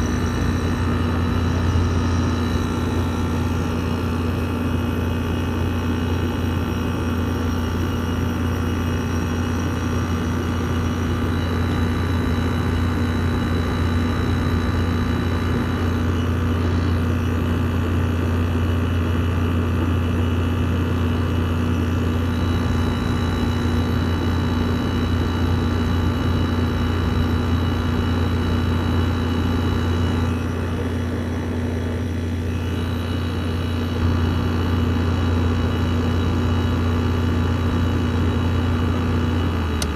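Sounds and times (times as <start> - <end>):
air conditioner humming: 0.0 - 5.3, 29.1 - 35.0
faint high whining tones: 0.0 - 18.5.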